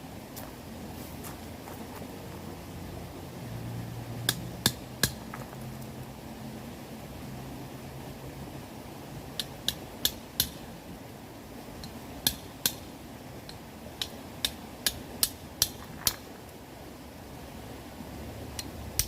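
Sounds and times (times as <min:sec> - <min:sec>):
low background rush: 0:00.0 - 0:19.0
firewood crackling and popping: 0:04.2 - 0:06.0, 0:11.8 - 0:16.6.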